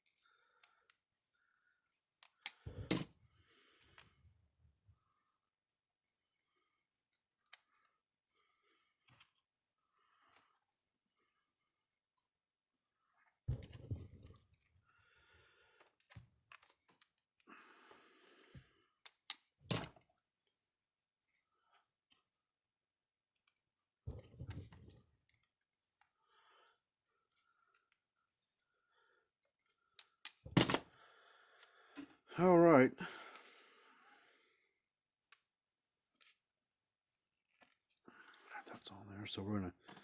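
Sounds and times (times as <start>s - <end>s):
wires and tools clicking and rustling: 0.0s - 3.2s, 6.0s - 8.0s, 15.7s - 17.5s, 18.5s - 20.5s, 23.3s - 31.0s, 35.2s - 38.8s.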